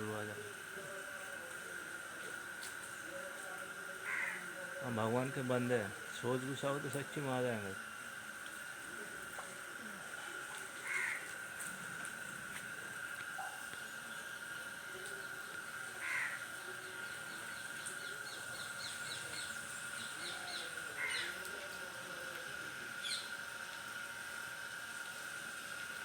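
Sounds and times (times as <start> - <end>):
birds calling: 17.0 - 21.4, 23.0 - 23.3.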